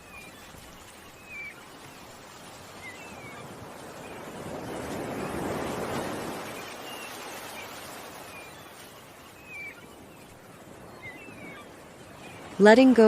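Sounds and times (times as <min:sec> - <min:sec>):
birds chirping: 0:00.0 - 0:13.0
ocean waves washing in: 0:00.0 - 0:13.0.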